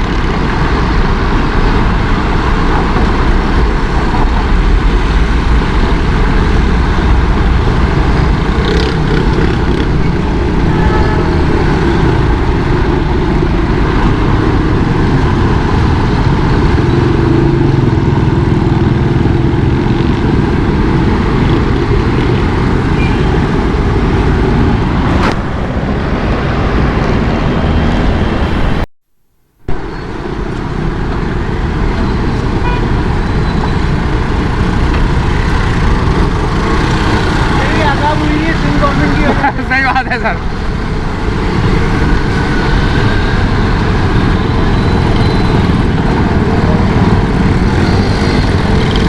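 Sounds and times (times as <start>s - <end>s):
motorcycle engine and road noise: 0.0s - 49.0s
car horns: 8.6s - 12.7s, 22.9s - 23.6s, 32.0s - 33.6s.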